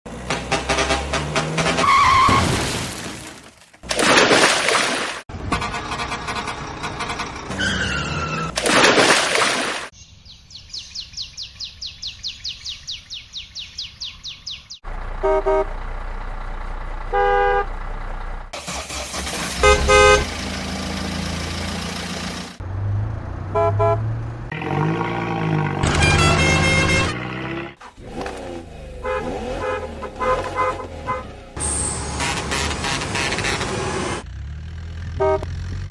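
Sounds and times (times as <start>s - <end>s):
engine humming low: 5.3s - 8.5s, 10.8s - 35.9s
vehicle horn tooting: 15.2s - 15.8s, 17.1s - 17.8s, 19.5s - 20.4s, 23.6s - 24.0s, 25.8s - 27.4s, 29.0s - 31.4s, 32.0s - 33.8s, 35.1s - 35.5s
loud noisy bursts: 18.6s - 22.6s.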